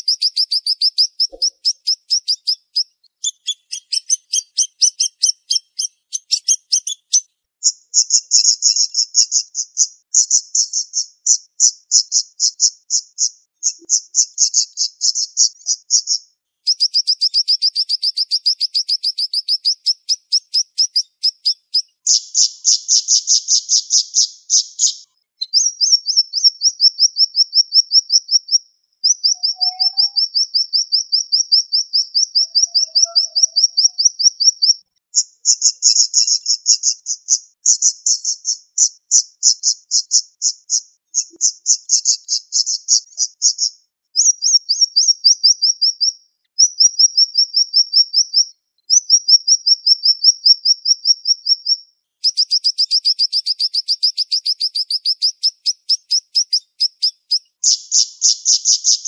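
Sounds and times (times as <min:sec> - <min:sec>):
songbird singing rapid notes: 0:00.0 - 0:59.0.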